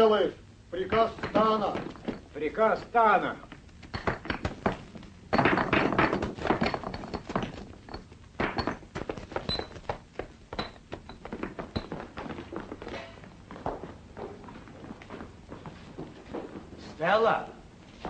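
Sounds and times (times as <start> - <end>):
rapid knocks and thuds: 0.9 - 3.0, 3.6 - 12.8.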